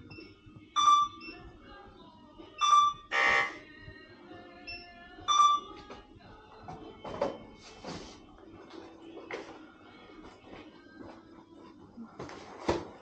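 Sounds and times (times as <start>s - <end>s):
barcode scanner beeps: 0.1s - 1.4s, 2.6s - 3.6s, 4.7s - 5.8s.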